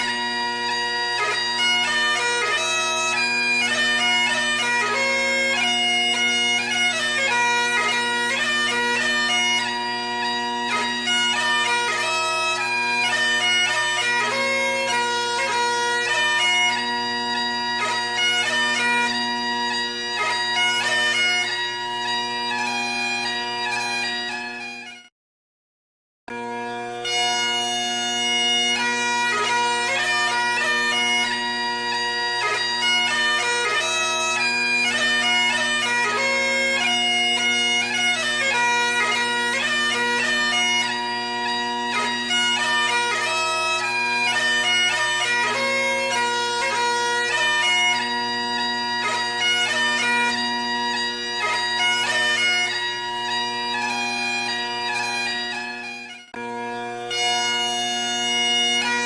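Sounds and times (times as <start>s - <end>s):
bagpipe music: 0.0s - 25.1s, 26.3s - 59.0s.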